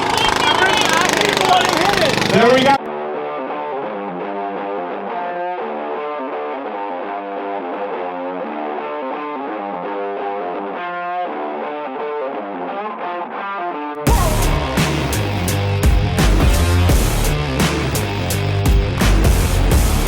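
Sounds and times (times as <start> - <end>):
distorted electric guitar riff: 0.0 - 20.0.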